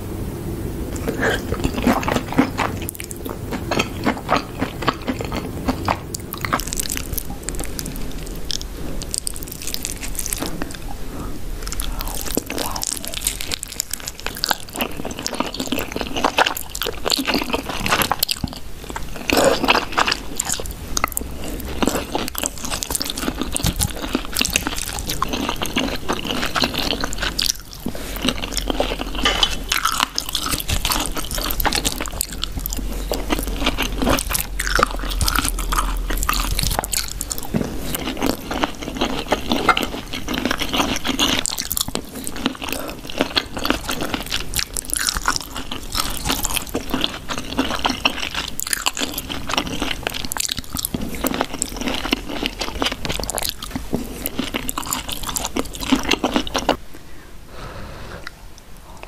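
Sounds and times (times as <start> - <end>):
chewing and crunching: 0.9 - 56.8
wet mouth sounds: 0.9 - 56.8.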